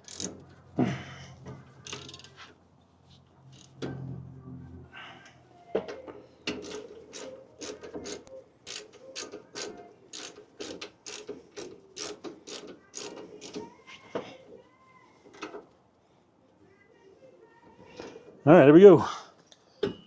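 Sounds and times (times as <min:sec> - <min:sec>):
socket ratchet wrench clicking: 0:00.0 - 0:00.4, 0:01.8 - 0:02.4, 0:03.5 - 0:03.8, 0:06.5 - 0:13.6.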